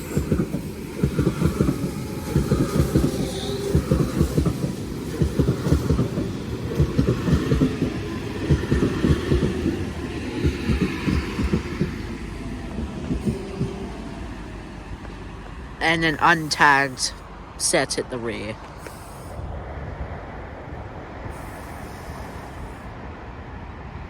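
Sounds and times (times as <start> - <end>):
train wheels clattering over rail joints: 0.0 - 16.5.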